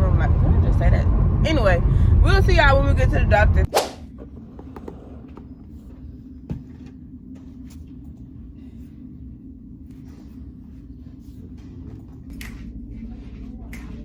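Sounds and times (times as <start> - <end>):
car engine and tyres rumbling: 0.0 - 5.9.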